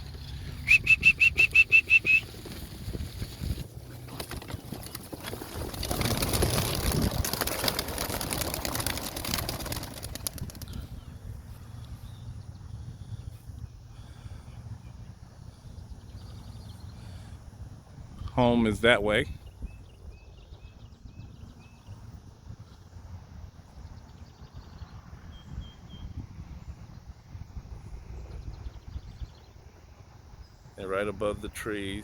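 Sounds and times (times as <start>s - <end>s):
pigeon wings flapping: 1.0s - 10.9s.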